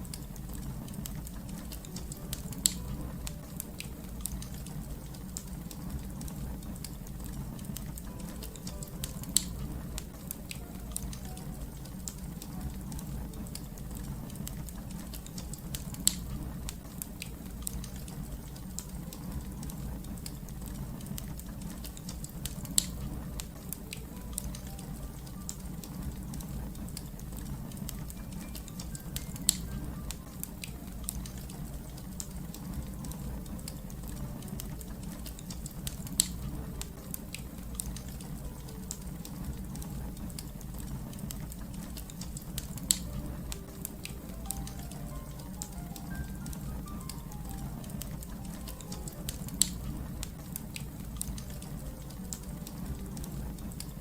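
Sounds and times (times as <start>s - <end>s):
low rumble of flames: 0.0s - 54.0s
wood fire crackling: 0.0s - 54.0s.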